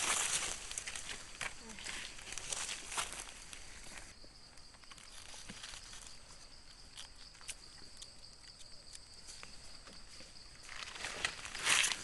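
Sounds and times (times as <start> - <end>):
footsteps on dry leaves: 0.0 - 4.1, 10.6 - 12.0.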